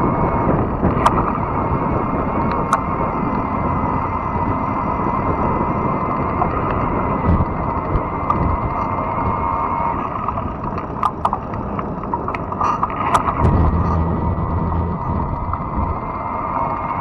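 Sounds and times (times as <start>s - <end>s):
bike tyre noise on trail: 0.0s - 17.0s
sharp clicks and rattles: 10.2s - 16.0s
wind rush: 12.0s - 17.0s.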